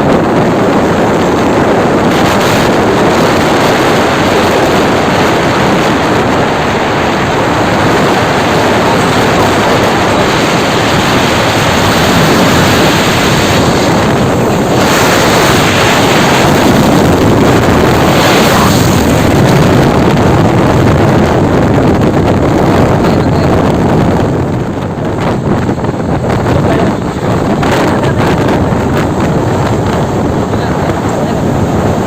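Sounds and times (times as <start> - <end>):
road traffic noise: 0.0 - 32.0
wind buffeting microphone: 0.0 - 32.0.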